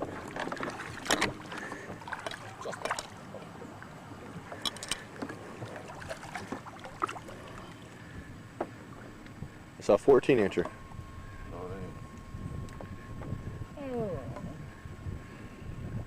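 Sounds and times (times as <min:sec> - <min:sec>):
knocks and clicks in a boat: 0:00.0 - 0:09.6, 0:12.1 - 0:13.4.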